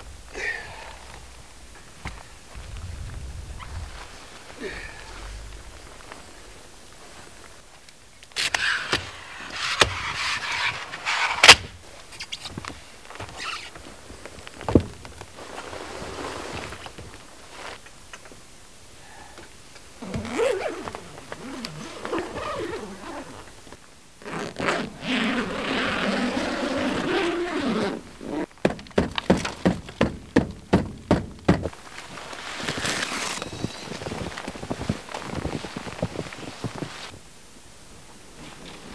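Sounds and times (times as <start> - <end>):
footsteps crunching through snow: 1.7 - 7.8, 31.6 - 37.2.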